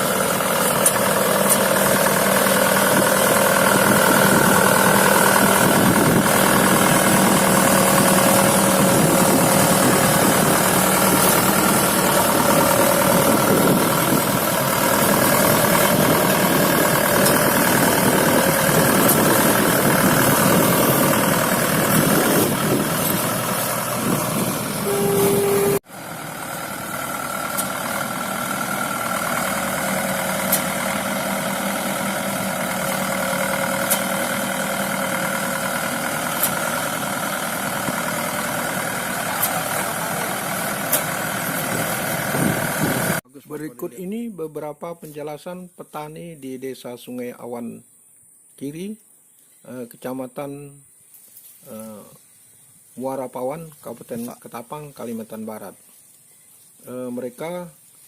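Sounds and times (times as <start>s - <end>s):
farm machinery engine running: 0.0s - 43.2s.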